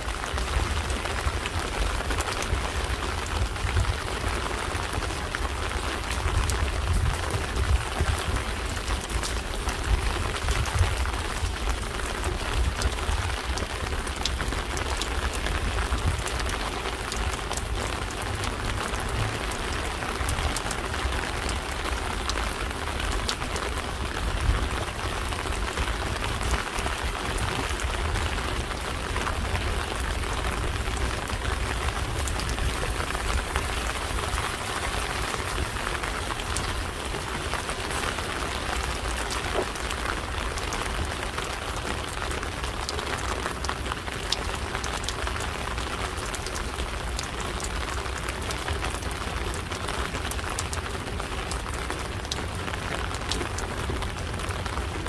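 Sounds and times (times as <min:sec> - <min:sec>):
steady rain with ticking drops: 0:00.0 - 0:55.0.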